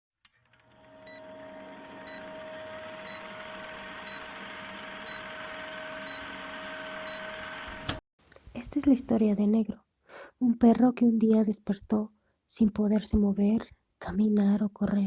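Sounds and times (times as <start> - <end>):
short high electronic beeps: 1.0 - 1.3, 2.0 - 2.3, 3.0 - 3.4, 4.0 - 4.4, 5.0 - 5.4, 6.0 - 6.4, 7.0 - 7.3.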